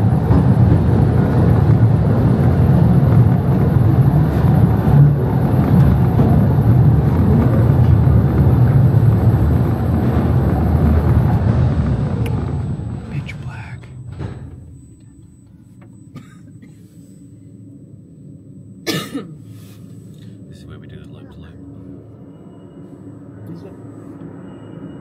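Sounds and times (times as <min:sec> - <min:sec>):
train rumbling on track: 0:00.0 - 0:15.2.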